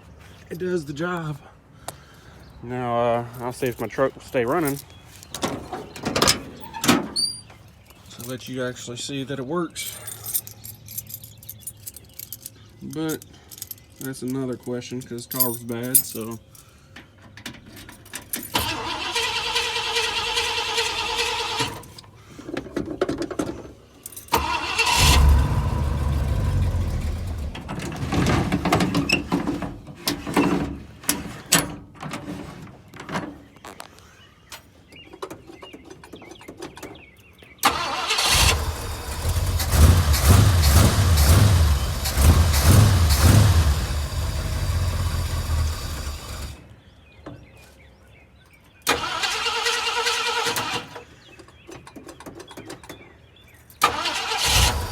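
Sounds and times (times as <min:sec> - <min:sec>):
pickup engine starting and surging: 0:18.6 - 0:21.9, 0:24.3 - 0:28.7, 0:37.6 - 0:46.6, 0:48.9 - 0:51.0, 0:53.8 - 0:54.9.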